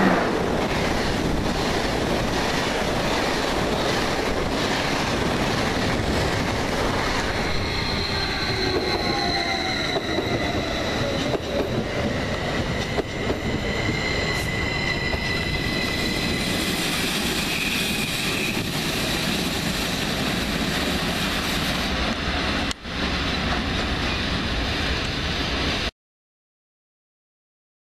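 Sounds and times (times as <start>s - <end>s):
train rumbling over rails: 0.0s - 25.9s
train wheels squealing: 5.8s - 25.0s.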